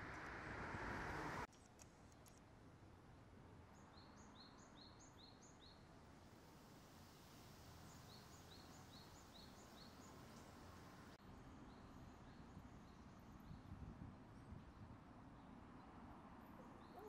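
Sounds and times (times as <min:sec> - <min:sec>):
outdoor background hiss: 0:00.0 - 0:13.5
small songbird chirping: 0:03.7 - 0:05.9, 0:07.7 - 0:11.1, 0:16.6 - 0:17.0.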